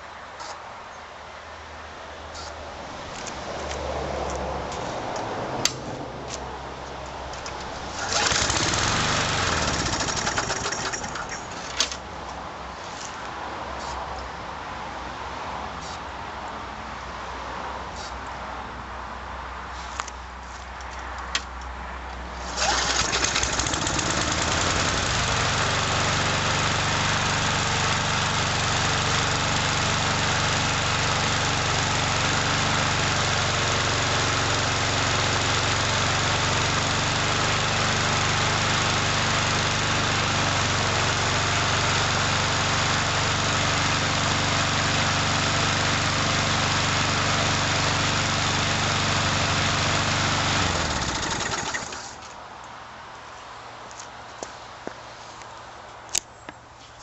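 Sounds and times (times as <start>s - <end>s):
lawn mower engine pull-started: 7.4s - 12.0s, 22.4s - 52.3s.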